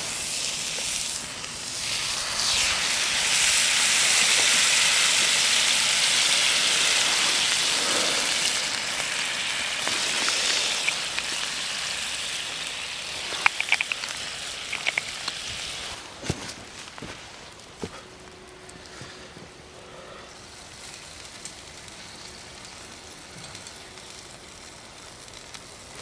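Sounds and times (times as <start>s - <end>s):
food sizzling in a pan: 0.0s - 16.0s
sharp pops and crackles: 0.0s - 19.0s.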